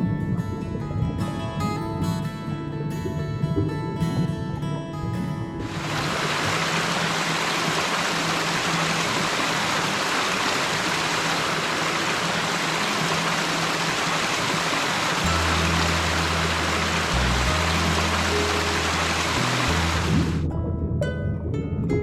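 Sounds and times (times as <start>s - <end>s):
guitar music: 0.0s - 22.0s
flowing water: 5.6s - 20.8s.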